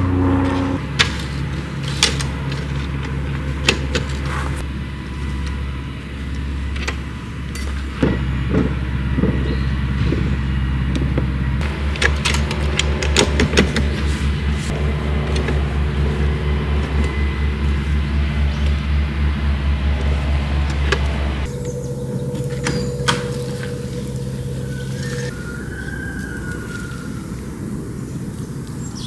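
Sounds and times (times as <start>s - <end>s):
car engine running: 0.0s - 25.3s
sharp clicks and knocks: 11.0s - 21.6s.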